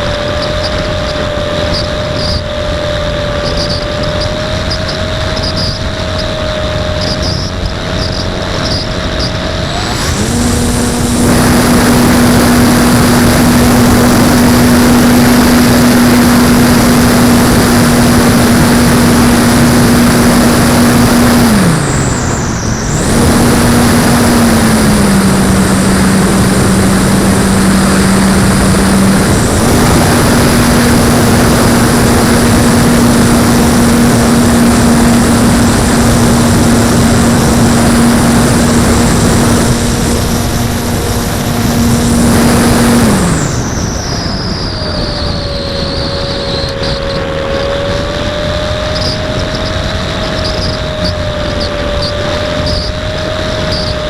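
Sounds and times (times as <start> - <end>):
electric motor and propeller whine: 0.0 - 54.0
wind rushing: 0.9 - 50.2.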